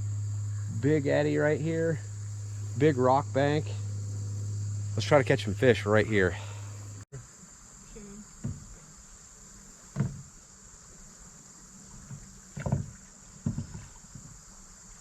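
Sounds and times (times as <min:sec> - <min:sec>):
high insect drone: 0:00.0 - 0:15.0
hollow knocks against a kayak: 0:08.4 - 0:08.9, 0:09.9 - 0:10.3, 0:11.9 - 0:14.4.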